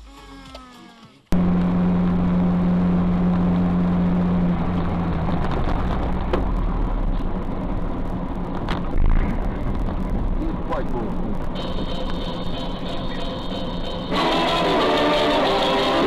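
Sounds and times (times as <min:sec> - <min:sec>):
car engine and road noise: 0:01.3 - 0:16.0
steady hum: 0:01.3 - 0:16.0.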